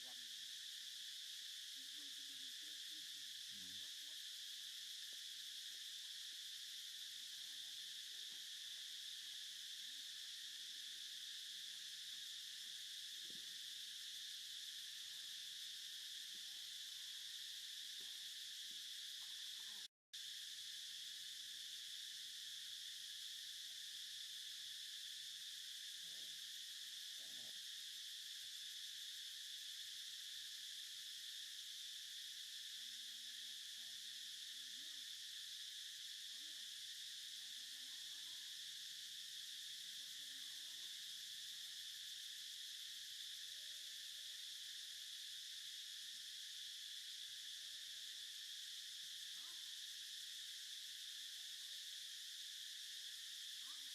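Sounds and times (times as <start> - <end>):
high-pitched insect drone: 0.0 - 53.9.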